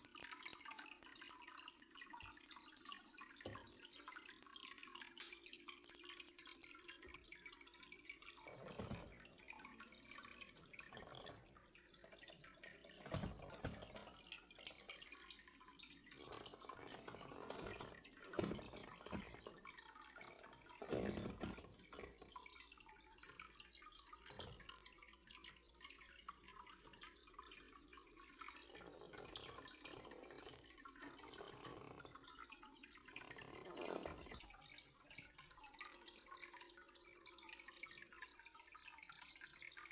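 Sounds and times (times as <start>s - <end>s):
water dripping and trickling: 0.0s - 39.9s
soft knocks: 13.0s - 14.2s, 16.2s - 19.5s.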